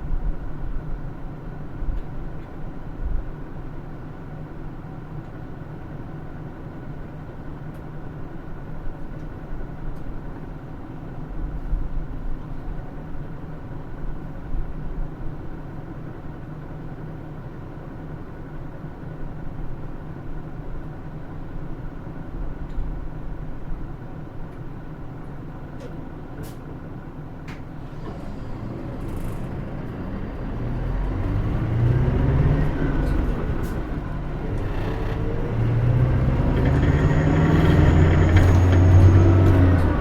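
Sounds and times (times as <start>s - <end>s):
bus diesel engine rumbling: 0.0s - 40.0s
road bumps: 27.5s - 40.0s.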